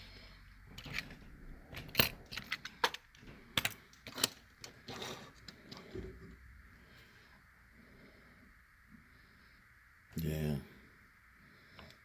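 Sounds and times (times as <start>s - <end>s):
toy cars clicking and tapping: 1.8s - 4.8s.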